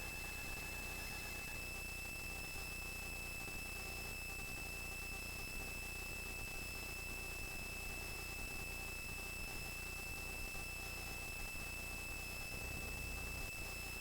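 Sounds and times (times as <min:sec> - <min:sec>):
helicopter cabin whine and hum: 0:00.0 - 0:05.3.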